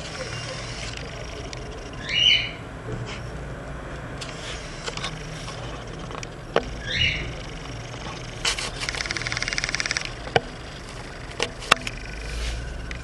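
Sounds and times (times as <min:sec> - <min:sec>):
bird squawk: 0:01.9 - 0:02.6, 0:06.8 - 0:07.4.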